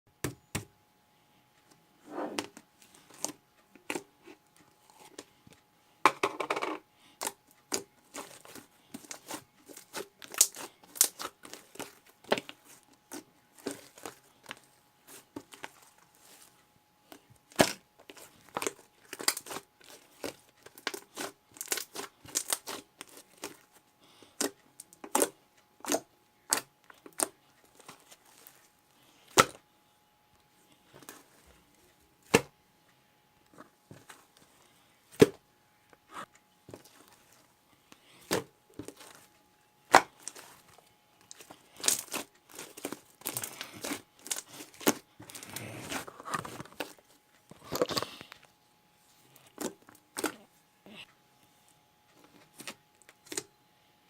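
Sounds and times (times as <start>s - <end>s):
packaging crinkling: 7.7s - 16.5s, 17.5s - 23.6s, 38.2s - 39.3s, 39.9s - 48.4s.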